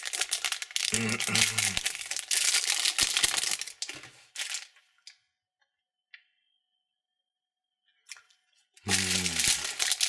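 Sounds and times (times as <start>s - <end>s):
candy wrapper crinkling: 0.0s - 5.2s, 8.8s - 10.0s.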